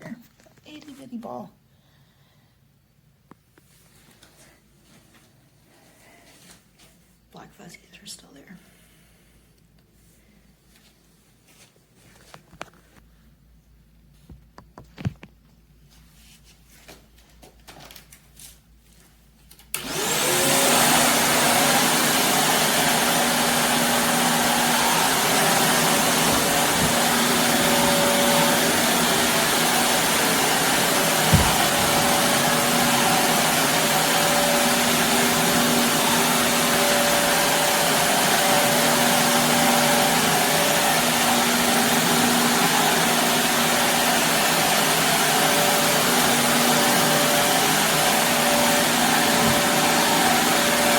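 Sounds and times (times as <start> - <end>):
vacuum cleaner motor whining: 19.8 - 50.9
bump: 31.1 - 32.7.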